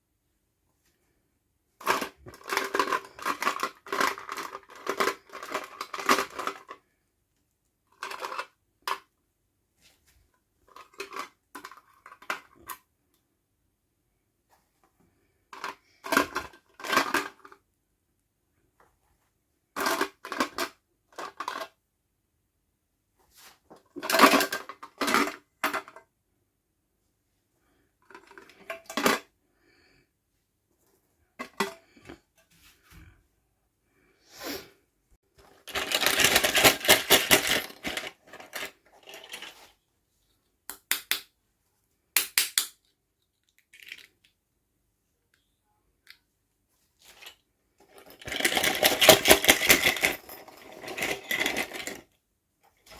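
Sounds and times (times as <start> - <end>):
plastic toy pieces clattering: 1.8 - 6.8, 7.9 - 9.1, 10.7 - 12.8, 15.5 - 17.6, 19.8 - 21.8, 24.0 - 26.1, 35.4 - 39.7, 43.3 - 44.4, 47.0 - 52.2
packaging rustling: 35.4 - 39.6.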